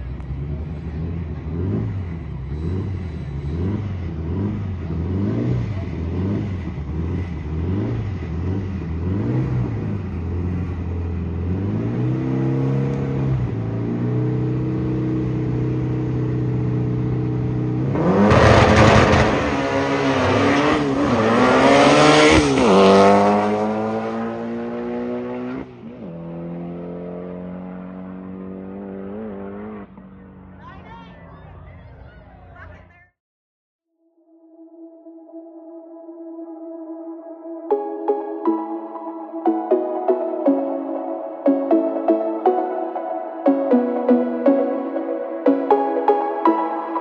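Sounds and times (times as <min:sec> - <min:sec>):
car engine revving: 0:00.0 - 0:30.6.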